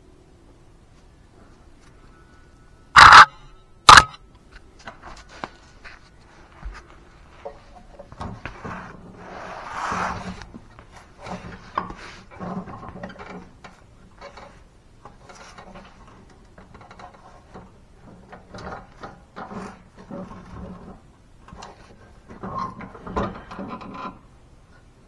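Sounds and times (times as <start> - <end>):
mower parts clicking and clunking: 3.0 - 3.3.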